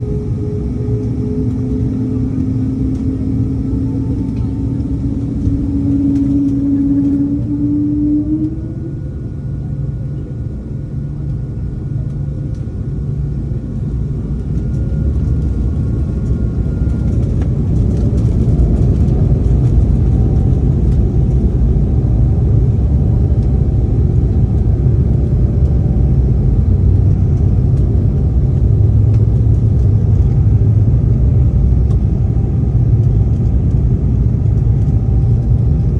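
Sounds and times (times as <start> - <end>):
jet engines spooling up: 0.0 - 10.0
low rumble of takeoff run: 0.0 - 35.9.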